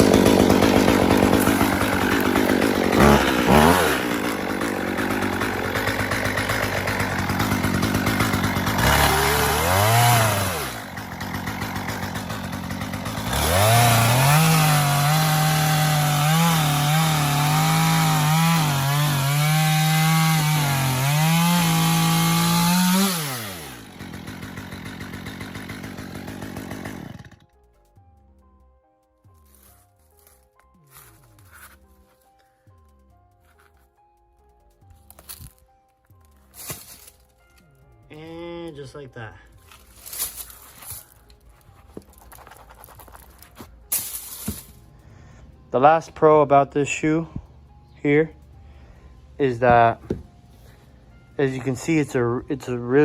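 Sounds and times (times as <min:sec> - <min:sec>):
chainsaw cutting: 0:00.0 - 0:27.5, 0:36.5 - 0:37.6, 0:39.6 - 0:44.8.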